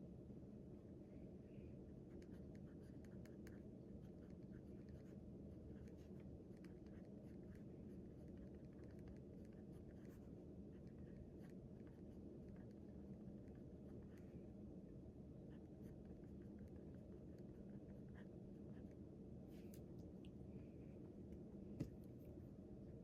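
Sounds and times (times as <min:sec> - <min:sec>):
low room hum: 0:00.0 - 0:23.0
writing on paper: 0:01.9 - 0:14.3, 0:15.5 - 0:19.0.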